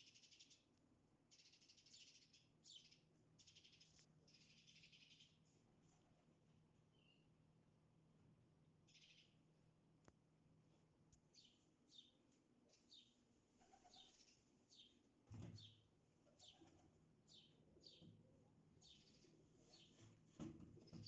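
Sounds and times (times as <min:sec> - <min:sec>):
faint bird chirping: 0:00.0 - 0:06.2, 0:06.8 - 0:07.4, 0:08.8 - 0:09.5, 0:11.1 - 0:20.1.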